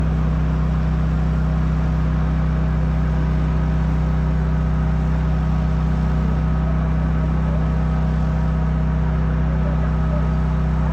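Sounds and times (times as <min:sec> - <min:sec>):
drone rotors humming: 0:06.3 - 0:10.9.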